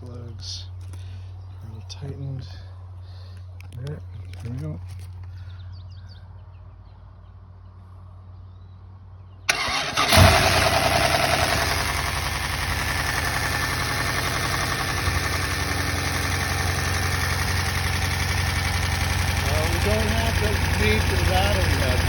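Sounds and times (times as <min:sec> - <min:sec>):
car engine starting and idling: 0:09.5 - 0:22.0
valvetrain clatter: 0:14.1 - 0:22.0.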